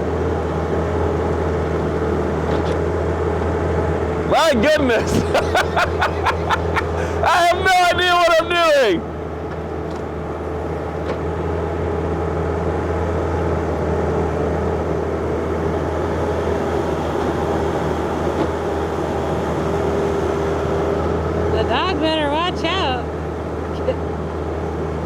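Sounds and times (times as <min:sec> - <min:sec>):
diesel engine running: 0:00.0 - 0:25.0
steady whine: 0:14.4 - 0:24.0.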